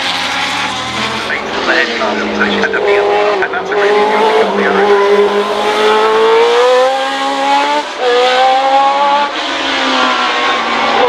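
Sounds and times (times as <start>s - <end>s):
gear upshift: 0.0s - 6.6s
racing car engine accelerating: 0.0s - 11.0s.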